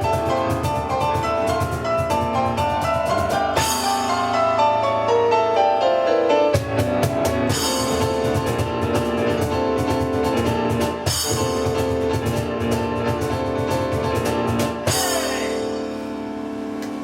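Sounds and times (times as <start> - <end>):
fast percussion strikes: 0.0 - 4.8, 6.5 - 16.2
piano notes: 0.0 - 17.0.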